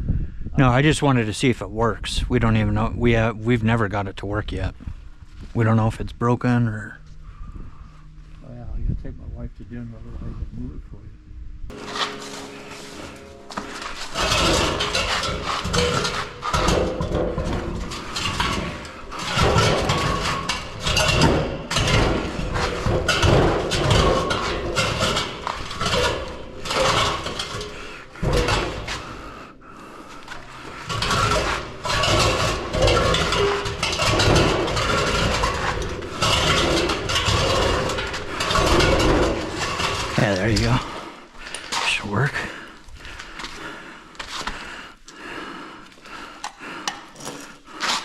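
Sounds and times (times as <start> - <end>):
clattering knocking and scraping: 11.7 - 42.0, 46.4 - 48.0.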